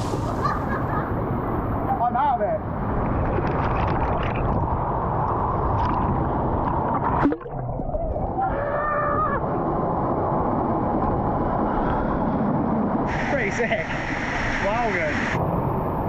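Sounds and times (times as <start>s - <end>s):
rushing water: 13.0s - 16.0s.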